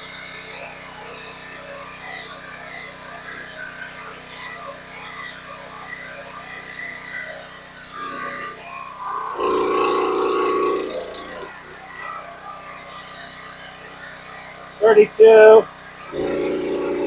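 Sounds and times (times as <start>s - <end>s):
pressure washer running: 9.0s - 17.0s.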